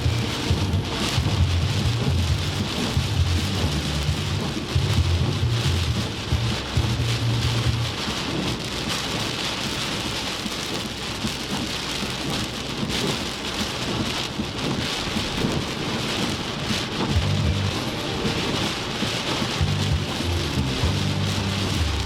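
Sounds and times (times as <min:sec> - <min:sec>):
heavy rain pouring: 0:00.0 - 0:22.0
low rumble: 0:00.0 - 0:22.0.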